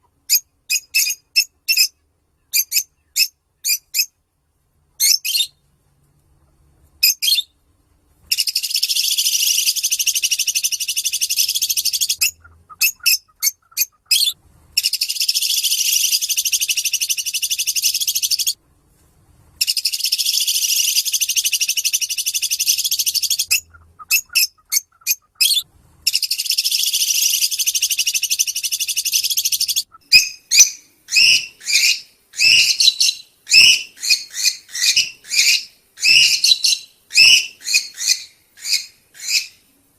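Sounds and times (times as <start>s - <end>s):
bird chirps: 0.3s - 4.1s, 5.0s - 5.6s, 8.3s - 18.6s, 19.6s - 39.6s.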